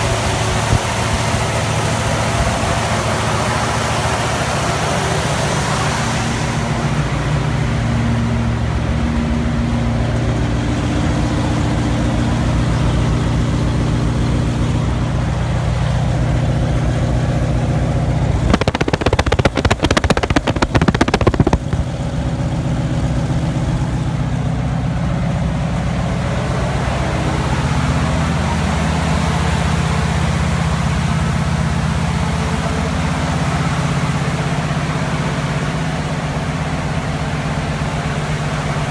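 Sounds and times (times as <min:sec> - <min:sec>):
rough crackling noise: 0:18.2 - 0:22.0.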